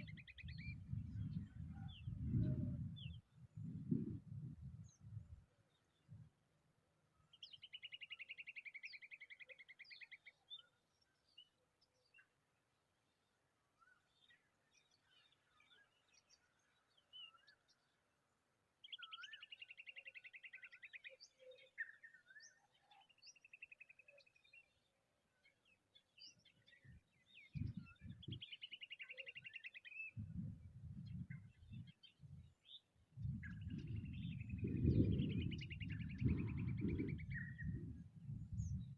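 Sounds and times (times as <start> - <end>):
birds chirping: 18.8 - 38.9.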